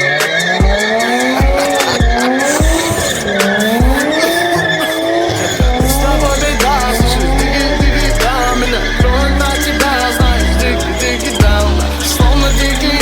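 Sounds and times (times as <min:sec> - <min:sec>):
background music with low beat: 0:00.0 - 0:13.0
deep bass: 0:05.6 - 0:13.0.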